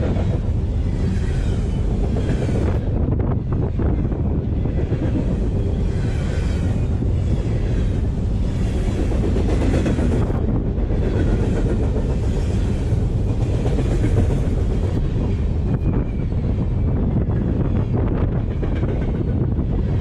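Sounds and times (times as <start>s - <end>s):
freight cars rumbling on rails: 0.0s - 20.0s
faint high wheel squeal: 15.7s - 17.0s.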